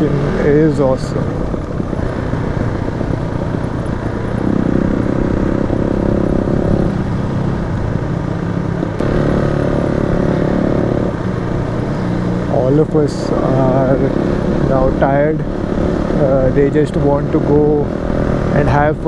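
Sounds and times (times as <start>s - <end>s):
motorcycle engine running: 0.0s - 19.0s
wind rumble on microphone: 0.0s - 19.0s.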